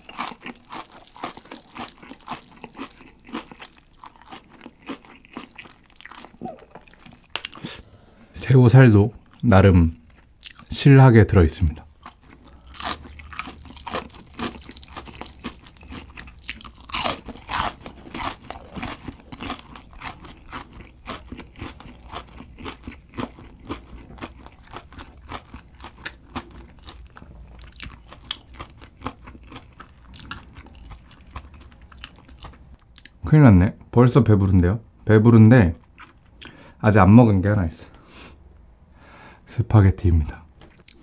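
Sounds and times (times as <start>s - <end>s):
person chewing crunchy food: 0.0s - 8.3s, 9.2s - 10.7s, 11.8s - 33.2s, 35.8s - 36.6s, 40.7s - 41.0s.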